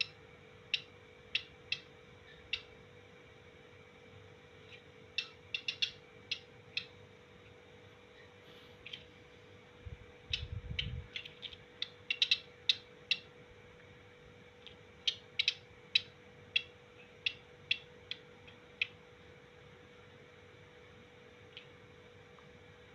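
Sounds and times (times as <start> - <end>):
faint steady hum: 0.0 - 22.9
bird chip notes: 5.1 - 7.1, 10.2 - 13.3.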